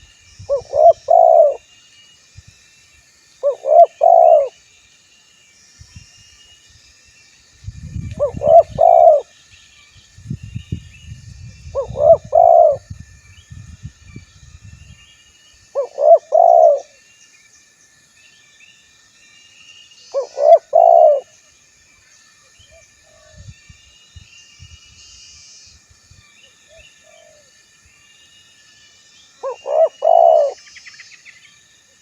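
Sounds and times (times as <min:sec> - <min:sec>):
small birds chirping: 0:00.0 - 0:04.6, 0:05.4 - 0:18.8, 0:19.4 - 0:31.6
dove cooing: 0:00.5 - 0:01.6, 0:03.4 - 0:04.6, 0:08.2 - 0:09.3, 0:11.7 - 0:12.9, 0:15.8 - 0:17.0, 0:20.2 - 0:21.3, 0:29.4 - 0:30.6.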